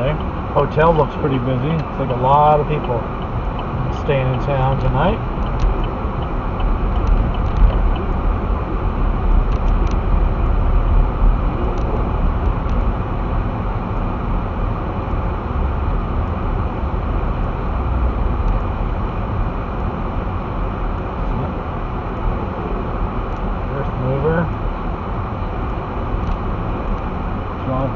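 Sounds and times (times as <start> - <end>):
vehicle engine and tyre noise: 0.0 - 27.9
faint ticks: 2.7 - 8.1.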